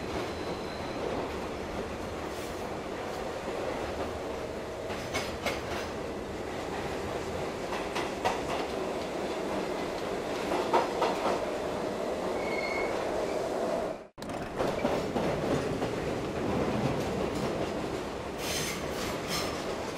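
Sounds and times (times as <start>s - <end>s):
train rumbling on rails: 0.0s - 19.9s
rail clicks: 0.1s - 11.5s, 14.2s - 19.9s
high-pitched wheel squeal: 12.4s - 13.4s.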